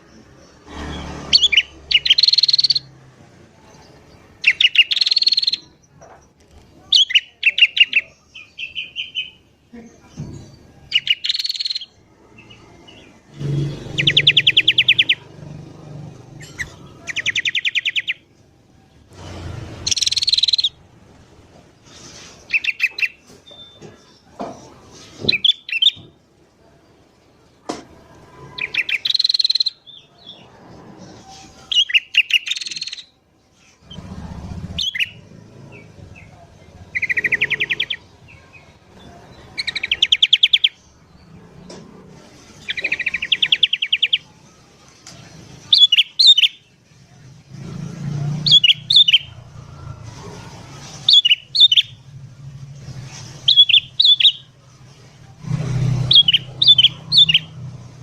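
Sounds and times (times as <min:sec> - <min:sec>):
bird chattering rattles: 0:19.8 - 0:20.8, 0:56.0 - 0:57.6
bird whistled notes: 0:51.1 - 0:51.9, 0:53.4 - 0:54.5, 0:56.1 - 0:57.5.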